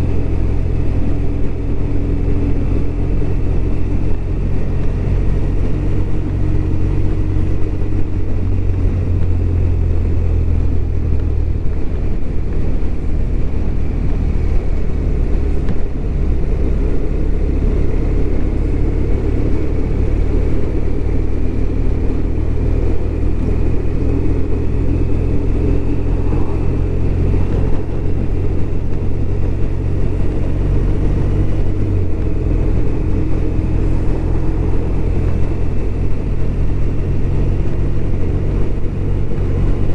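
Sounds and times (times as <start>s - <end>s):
motorcycle engine running: 0.0s - 39.9s
rushing noise: 8.0s - 39.9s.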